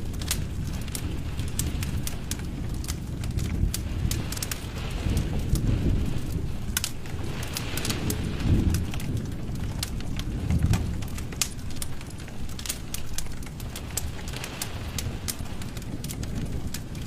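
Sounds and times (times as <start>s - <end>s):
low rumble of flames: 0.0s - 17.0s
sharp pops from fire: 0.0s - 17.0s
wood fire crackling: 0.0s - 17.0s.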